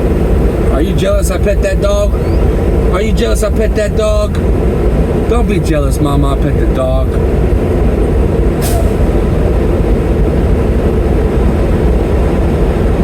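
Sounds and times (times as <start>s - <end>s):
diesel truck engine running: 0.0s - 13.0s
short hiss: 8.6s - 9.0s.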